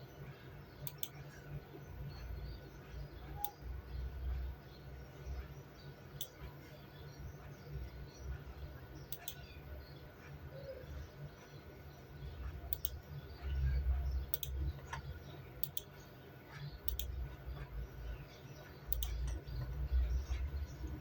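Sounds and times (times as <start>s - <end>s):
sharp clicks: 0.8s - 1.2s, 6.2s - 6.4s, 9.1s - 9.5s, 12.7s - 13.1s, 14.2s - 16.0s, 16.8s - 17.2s, 18.9s - 19.6s.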